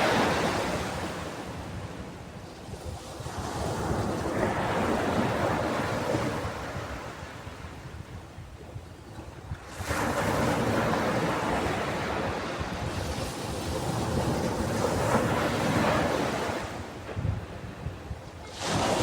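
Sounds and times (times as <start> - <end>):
rush of surf: 0.0 - 2.0, 9.6 - 19.0
ocean wave breaking: 18.4 - 19.0.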